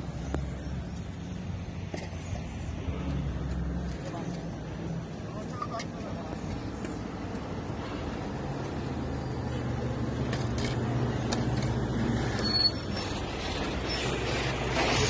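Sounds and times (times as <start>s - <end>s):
vehicle engine humming: 0.0s - 15.0s
high-pitched squeak: 12.3s - 15.0s.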